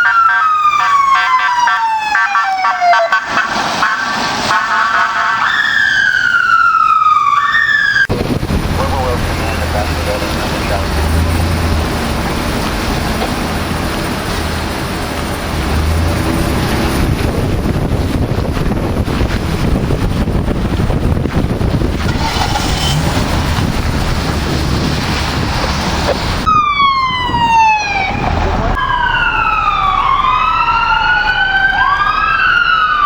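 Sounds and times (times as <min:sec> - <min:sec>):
rushing road and vehicle noise: 0:00.0 - 0:07.3, 0:07.9 - 0:33.0
emergency vehicle siren: 0:00.0 - 0:14.9, 0:22.5 - 0:33.0.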